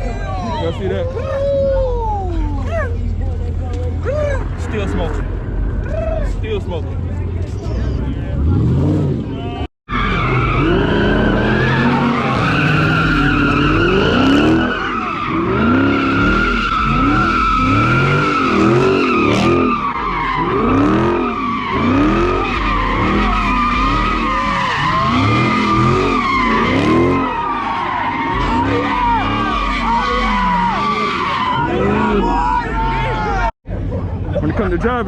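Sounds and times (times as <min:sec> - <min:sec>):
engine revving: 0:07.6 - 0:32.3
tyres squealing: 0:09.3 - 0:33.5.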